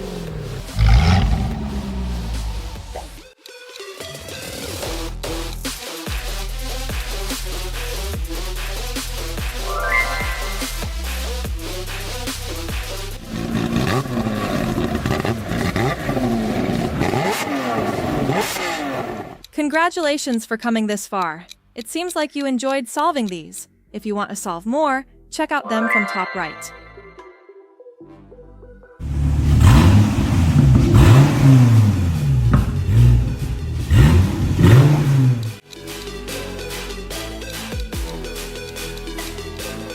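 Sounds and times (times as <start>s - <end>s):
car engine revving: 0.0s - 3.2s, 13.1s - 19.4s, 29.0s - 35.6s
music: 0.0s - 15.4s, 20.2s - 29.3s, 31.2s - 39.9s.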